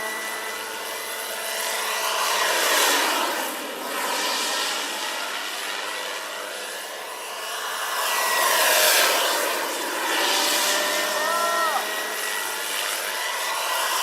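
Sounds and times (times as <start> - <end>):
model airplane engine: 0.0 - 14.0.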